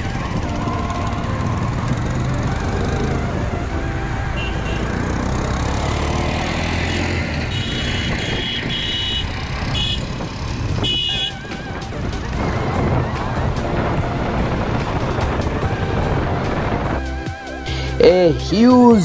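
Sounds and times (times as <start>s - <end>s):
motorcycle engine: 0.0s - 18.2s
road and wind noise: 0.0s - 19.0s
vehicle horn toots: 4.3s - 5.2s, 6.8s - 10.2s, 10.8s - 11.5s.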